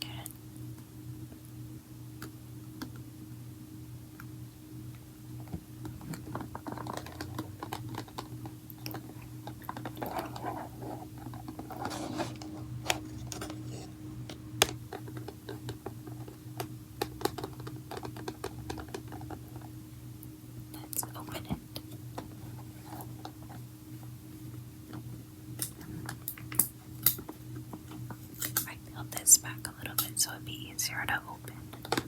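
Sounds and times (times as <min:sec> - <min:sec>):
fingernails tapping on packaging: 0:05.5 - 0:19.6
packaging rustling: 0:06.1 - 0:15.6.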